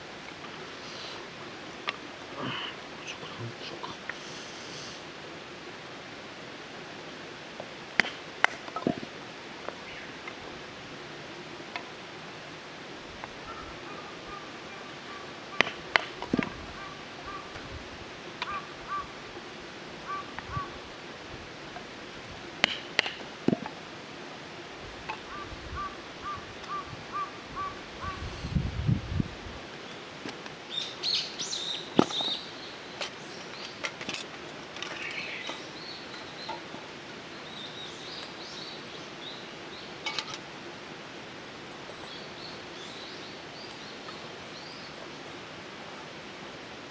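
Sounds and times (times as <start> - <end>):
steady hiss: 0.0 - 46.9
bird repeating short call: 20.1 - 20.8.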